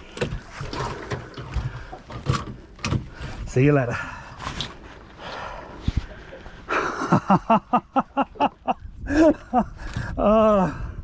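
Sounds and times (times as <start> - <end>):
man laughing: 6.0 - 10.8.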